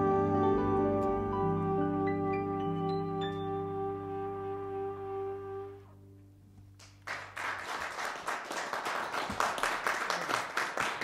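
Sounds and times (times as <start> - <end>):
jazz combo chord ringing: 0.0 - 6.7
audience applause: 6.8 - 11.0.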